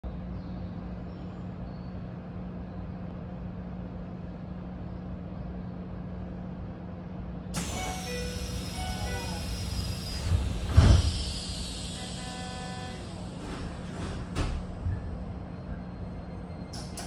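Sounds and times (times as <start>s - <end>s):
electric train hum: 0.1s - 17.0s.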